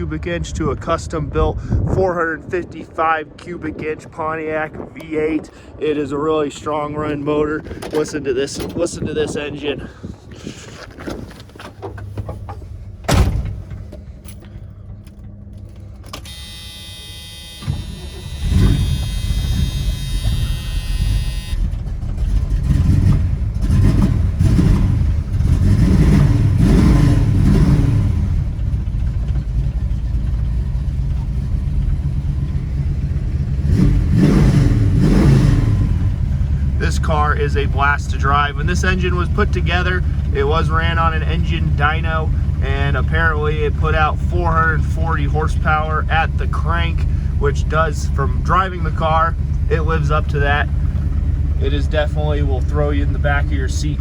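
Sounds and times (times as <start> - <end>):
car engine starting and revving: 11.0 - 54.0.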